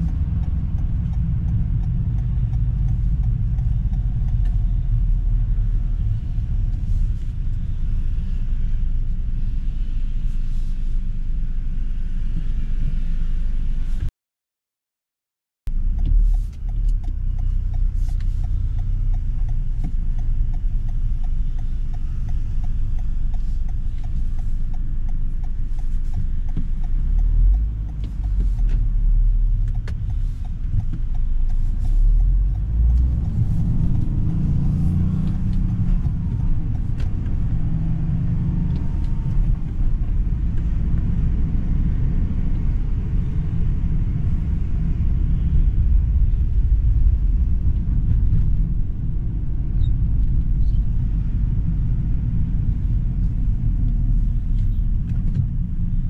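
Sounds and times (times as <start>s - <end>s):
car engine rumbling in traffic: 0.0s - 14.1s, 15.7s - 56.0s.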